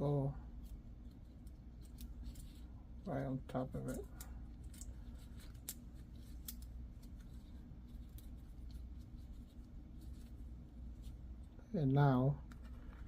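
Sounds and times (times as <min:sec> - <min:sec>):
low background hum: 0:00.0 - 0:13.0
metallic clicks and scrapes: 0:00.6 - 0:02.8, 0:03.7 - 0:10.4.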